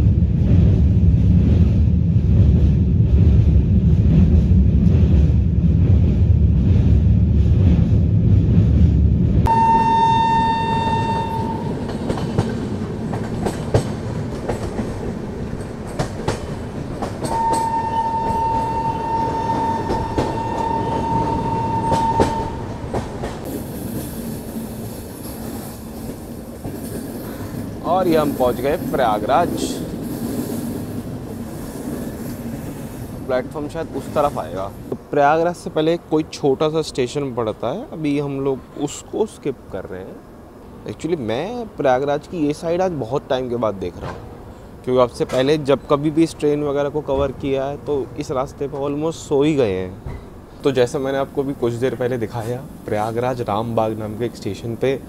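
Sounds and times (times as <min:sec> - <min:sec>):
train rumbling across a bridge: 0:00.0 - 0:55.0
train horn blasts: 0:09.5 - 0:12.0, 0:17.2 - 0:22.8.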